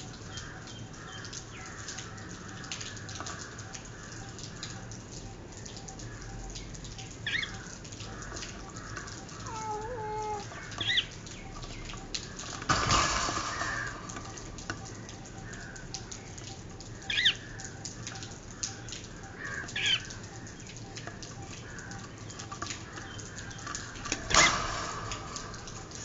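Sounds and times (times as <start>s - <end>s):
bird chick squawking: 9.4s - 11.2s.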